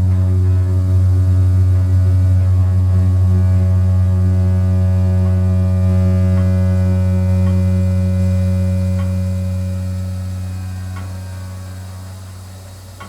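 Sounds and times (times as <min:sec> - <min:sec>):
water heater humming: 0:00.0 - 0:13.0
faint ticks: 0:10.8 - 0:13.0.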